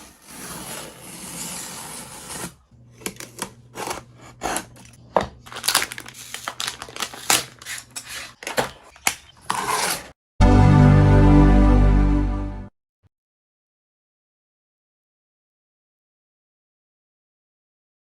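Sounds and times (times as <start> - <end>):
packaging rustling: 3.2 - 10.1
packaging crinkling: 5.4 - 8.9.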